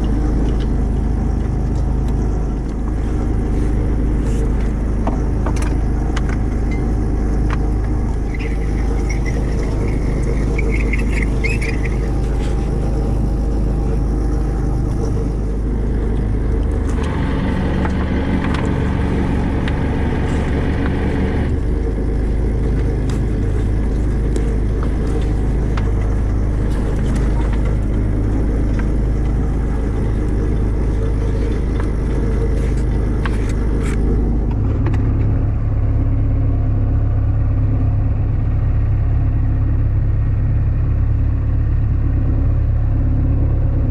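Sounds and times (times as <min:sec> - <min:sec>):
rattling noise: 0:00.0 - 0:35.5
boat engine rumbling: 0:00.0 - 0:43.9.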